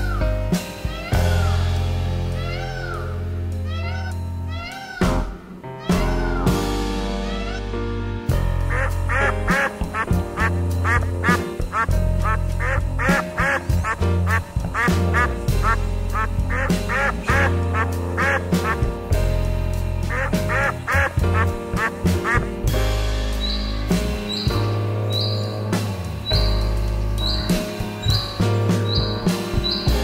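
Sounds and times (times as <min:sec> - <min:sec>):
background music with bass: 0:00.0 - 0:30.0
ducks quacking: 0:02.4 - 0:03.1, 0:07.3 - 0:07.7, 0:08.6 - 0:18.9, 0:20.1 - 0:22.6, 0:23.3 - 0:30.0.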